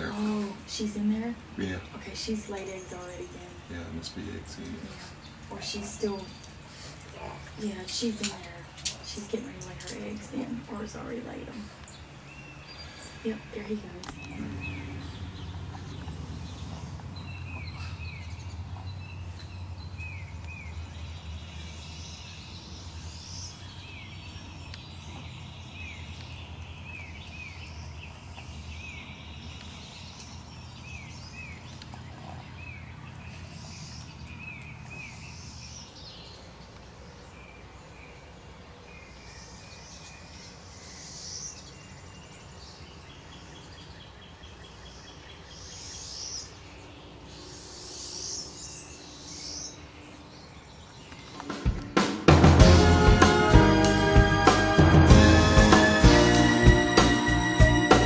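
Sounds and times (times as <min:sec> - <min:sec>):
steady low hum: 0:00.0 - 0:21.2
small birds chirping: 0:00.0 - 0:52.0.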